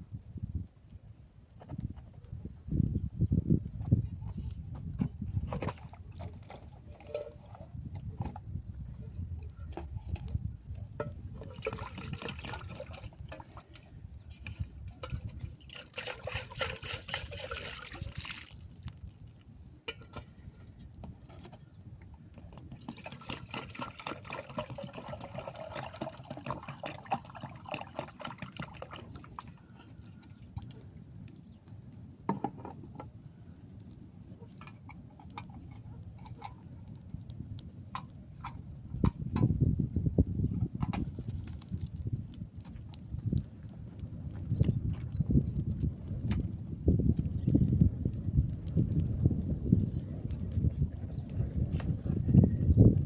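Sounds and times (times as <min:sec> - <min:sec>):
water splashing and trickling: 0:11.0 - 0:20.2, 0:22.6 - 0:30.7.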